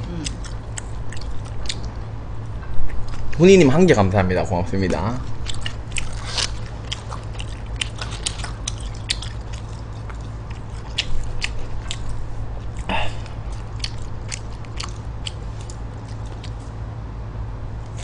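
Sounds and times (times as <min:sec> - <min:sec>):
wet chewing mouth clicks: 0:00.0 - 0:02.0, 0:05.2 - 0:16.7
steady low hum: 0:00.0 - 0:18.0.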